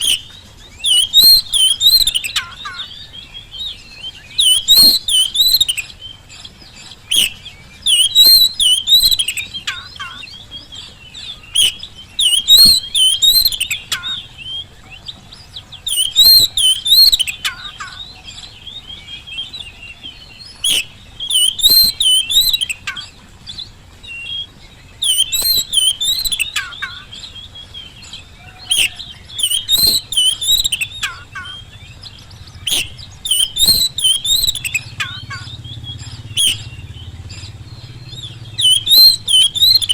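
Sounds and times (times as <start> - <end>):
bird warbling song: 0.0 - 39.9
sharp bird clicks: 0.8 - 2.7, 4.1 - 10.0, 11.5 - 14.6, 15.8 - 18.1, 20.6 - 23.6, 25.0 - 27.0, 28.7 - 39.9.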